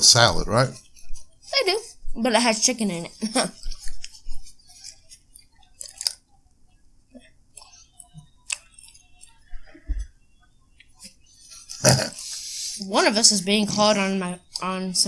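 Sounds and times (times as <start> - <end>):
person chewing: 4.9 - 6.2.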